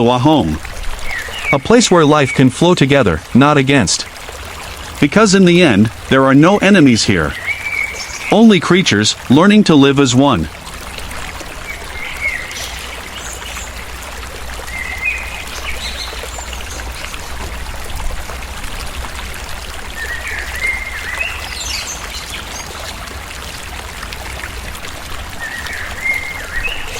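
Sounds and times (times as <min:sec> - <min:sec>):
water trickling: 0:00.0 - 0:26.9
bird chirps: 0:01.0 - 0:02.6, 0:07.2 - 0:08.6, 0:11.6 - 0:13.8, 0:14.6 - 0:17.3, 0:20.0 - 0:22.7, 0:25.4 - 0:26.9.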